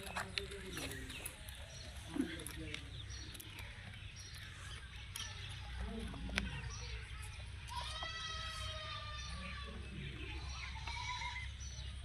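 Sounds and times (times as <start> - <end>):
faint birdsong: 0.0 - 12.0
drawn-out pitched call: 4.5 - 12.0.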